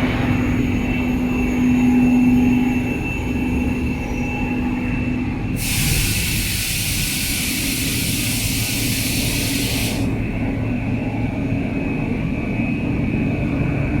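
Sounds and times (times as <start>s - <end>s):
industrial machinery humming: 0.0s - 14.0s
loud hiss: 5.6s - 10.2s.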